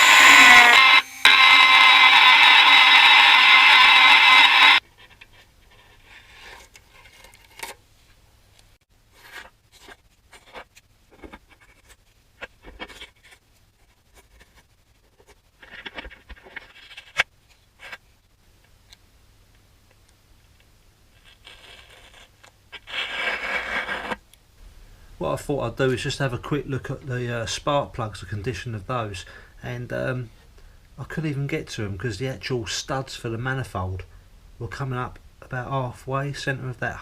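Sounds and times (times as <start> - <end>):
rustling scrape: 4.8 - 8.2, 9.1 - 18.2
objects being handled: 9.1 - 18.2.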